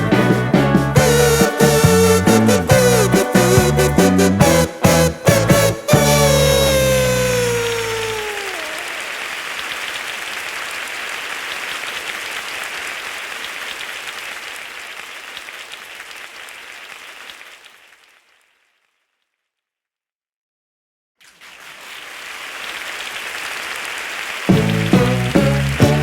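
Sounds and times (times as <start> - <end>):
applause: 6.7 - 19.0, 21.2 - 26.0.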